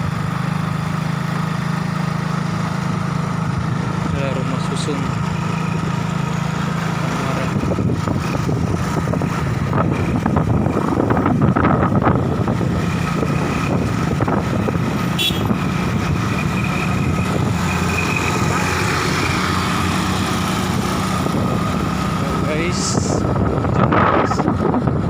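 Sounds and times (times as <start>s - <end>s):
street noise: 0.0s - 25.0s
vehicle engine running: 0.0s - 25.0s.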